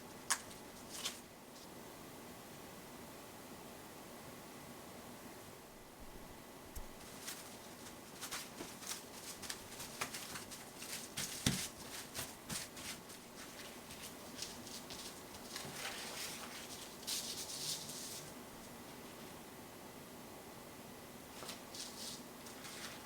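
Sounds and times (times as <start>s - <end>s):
hands rustling materials: 0.3s - 1.8s, 6.7s - 18.7s, 21.4s - 23.0s.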